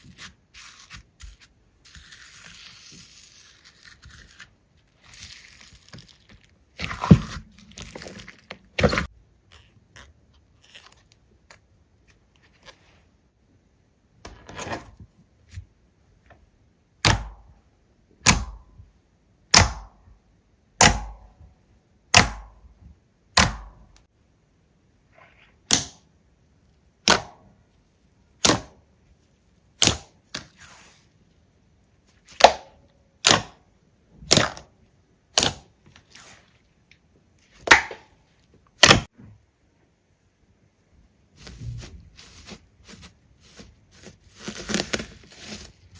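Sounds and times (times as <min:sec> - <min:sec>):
slime stretching and squelching: 0:00.0 - 0:11.2, 0:41.4 - 0:45.9.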